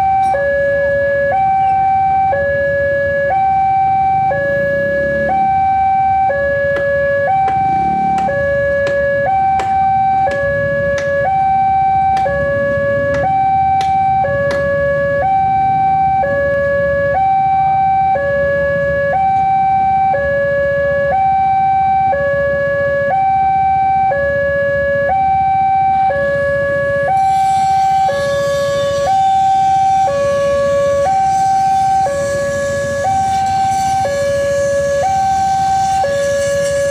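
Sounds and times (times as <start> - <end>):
two-tone railway warning alarm: 0.0 - 36.9
rushing noise: 7.4 - 8.9.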